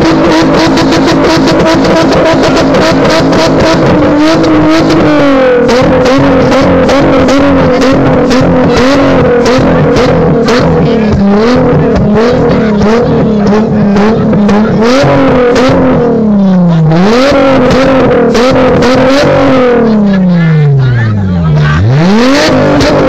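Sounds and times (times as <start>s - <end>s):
engine revving hard: 0.0s - 23.0s
exhaust cracks: 0.0s - 23.0s.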